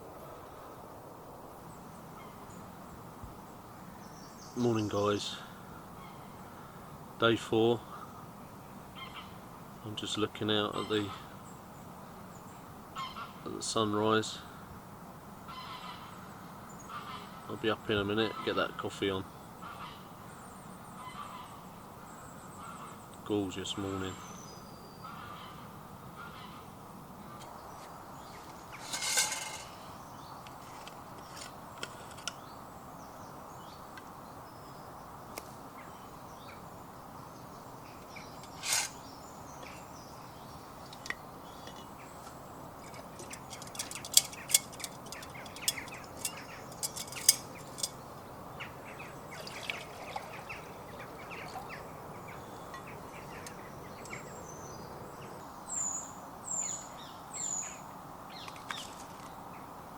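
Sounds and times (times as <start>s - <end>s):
low outdoor rush: 0.0s - 59.9s
birds calling: 1.6s - 59.9s.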